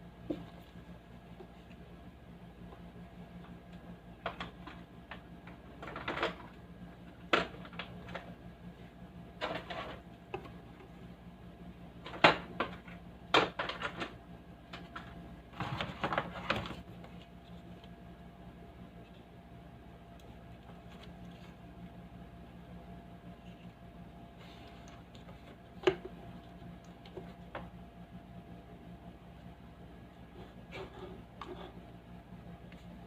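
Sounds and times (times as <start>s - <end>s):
faint steady hum: 0.0s - 33.0s
clicks and rattles of handling: 3.4s - 6.6s.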